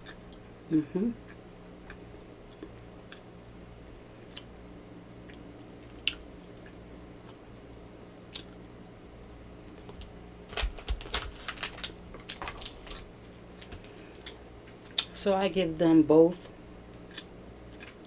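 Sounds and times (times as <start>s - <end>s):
crunchy cookie chewing: 9.6s - 15.2s, 16.9s - 18.0s.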